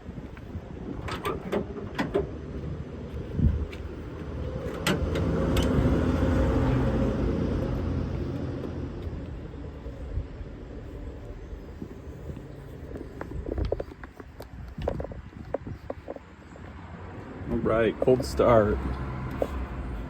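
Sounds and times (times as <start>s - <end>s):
vehicle engine passing: 2.3s - 10.1s, 16.7s - 20.0s.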